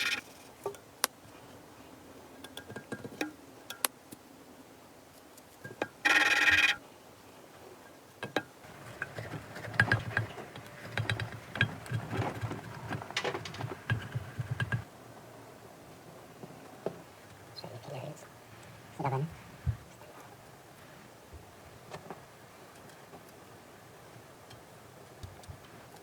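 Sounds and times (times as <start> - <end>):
telephone-like ringing tone: 0.0 - 0.2, 6.0 - 6.8
irregular clicks and knocks: 8.2 - 14.9.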